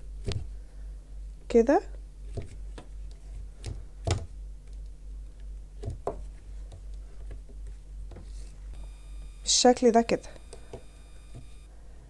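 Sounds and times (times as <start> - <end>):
steady low hum: 8.8 - 11.7.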